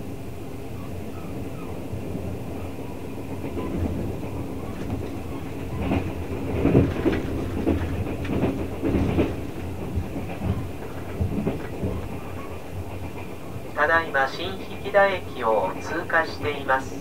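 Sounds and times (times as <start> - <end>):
train coach rumble: 0.0 - 17.0
wheels clacking over rail joints: 3.2 - 13.8.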